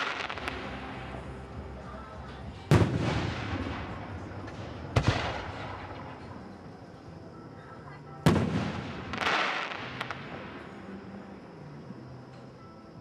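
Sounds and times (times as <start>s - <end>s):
fireworks crackle and rumble: 0.0s - 6.9s, 8.2s - 11.0s.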